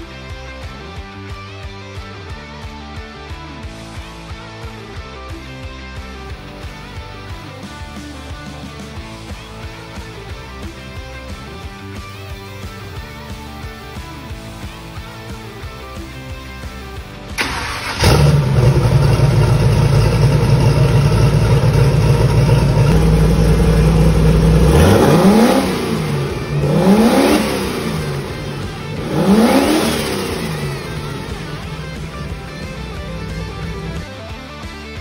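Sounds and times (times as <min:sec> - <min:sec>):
turbocharged engine revving: 0:17.4 - 0:34.3.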